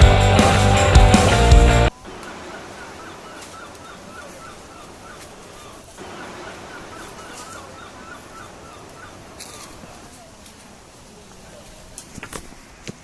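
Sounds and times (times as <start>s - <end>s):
bird chirping: 0.0s - 10.2s.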